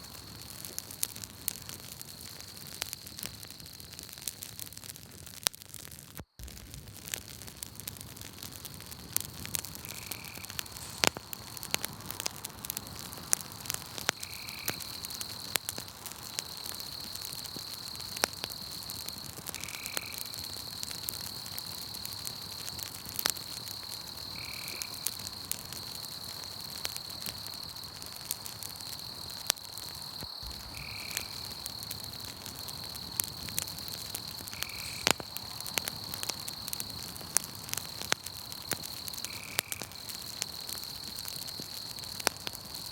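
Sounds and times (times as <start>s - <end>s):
night insects trilling: 0.0s - 4.6s, 6.3s - 42.9s
campfire crackling and popping: 0.0s - 42.9s.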